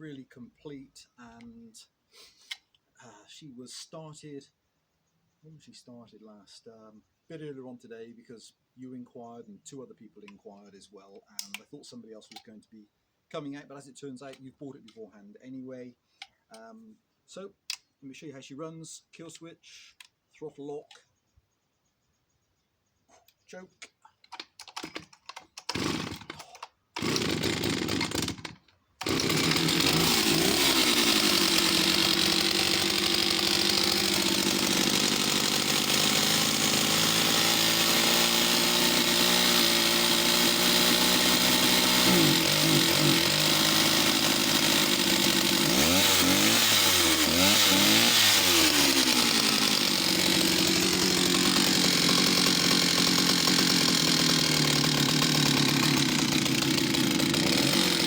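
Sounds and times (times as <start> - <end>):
chainsaw starting and revving: 24.3 - 58.0.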